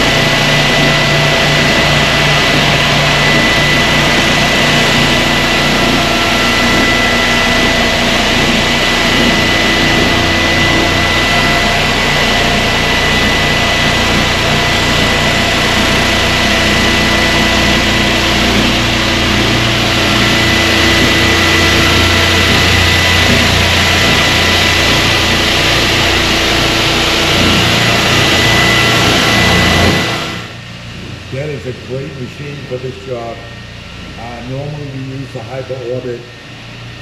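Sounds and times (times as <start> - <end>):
floor sanding machine motor drone: 0.0 - 37.0
high whine: 0.0 - 37.0.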